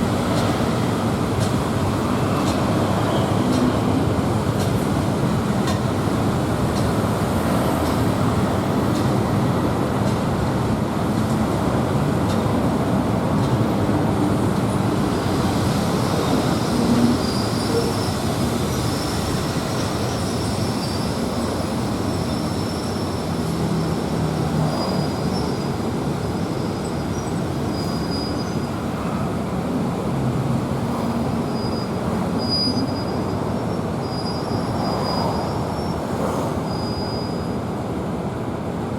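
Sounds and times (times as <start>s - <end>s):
train rumble on board: 0.0s - 38.9s
high-pitched wheel squeal: 15.9s - 29.0s, 31.3s - 37.7s.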